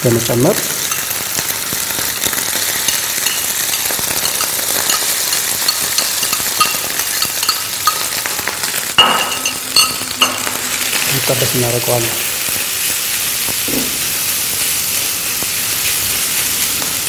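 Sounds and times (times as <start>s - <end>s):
food sizzling in hot oil: 0.0s - 17.0s
spatula stirring in pan: 2.4s - 8.5s
ringing clink: 2.9s - 8.2s, 9.0s - 10.5s.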